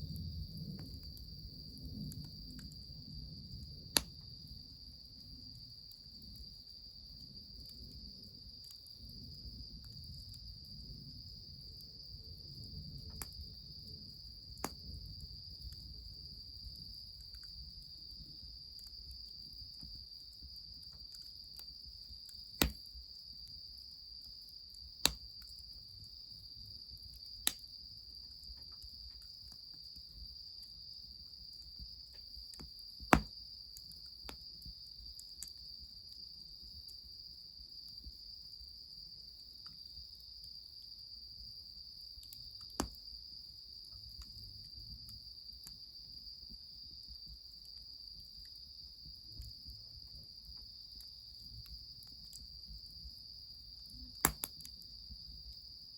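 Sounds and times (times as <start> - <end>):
crickets chirring: 0.0 - 55.9
sharp cracks: 22.6 - 22.8.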